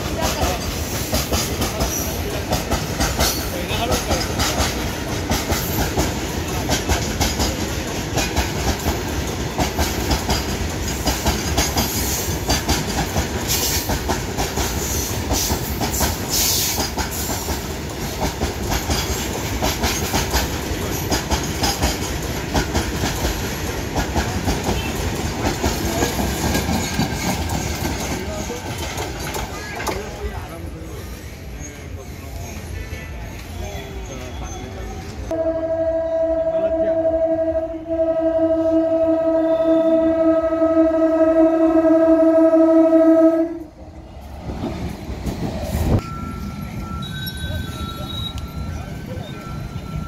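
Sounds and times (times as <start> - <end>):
freight train wheels clattering: 0.0 - 33.5.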